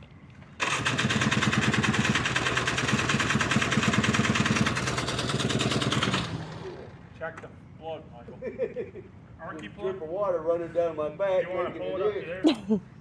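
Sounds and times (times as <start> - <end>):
electric starter cranking engine: 0.6 - 7.2.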